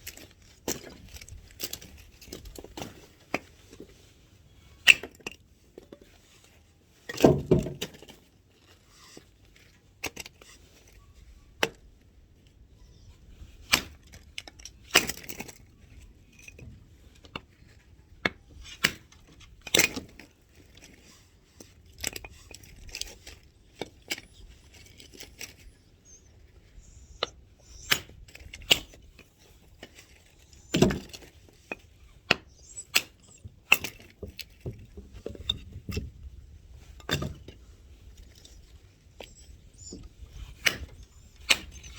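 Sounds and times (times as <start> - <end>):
wood knocking and clattering: 7.1 - 8.1.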